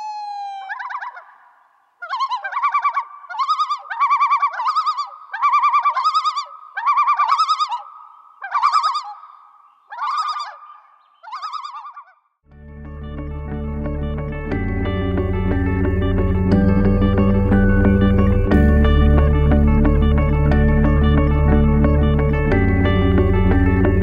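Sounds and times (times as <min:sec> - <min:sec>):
loon calling: 0:00.0 - 0:12.2.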